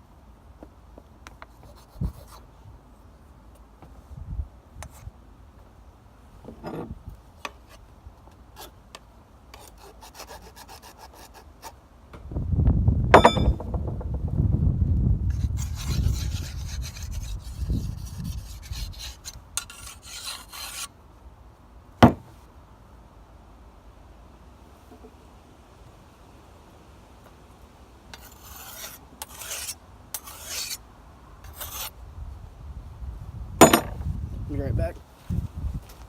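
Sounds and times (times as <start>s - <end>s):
metallic ring: 13.1s - 13.7s
sharp knock: 13.1s - 14.3s
whetstone rubbing on blade: 15.5s - 20.9s, 28.2s - 30.8s, 31.5s - 31.9s.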